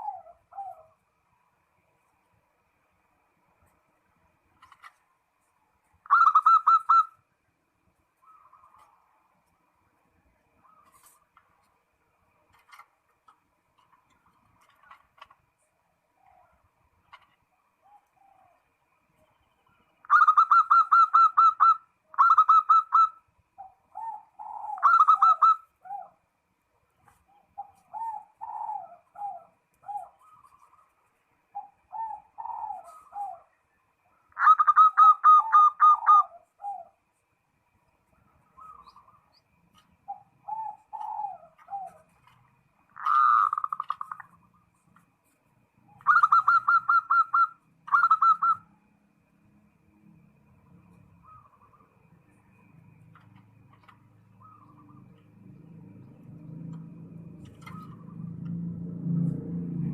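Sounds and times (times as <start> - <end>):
dove cooing song: 0.0 - 1.1, 6.0 - 7.2, 8.2 - 9.2, 10.6 - 11.3, 16.1 - 26.3, 27.0 - 30.9, 31.5 - 37.1, 38.4 - 45.0, 45.8 - 48.8, 51.2 - 51.9, 52.6 - 59.9.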